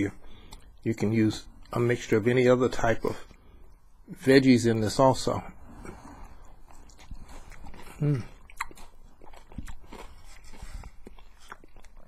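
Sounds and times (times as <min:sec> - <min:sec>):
person chewing crunchy food: 0:05.5 - 0:12.0.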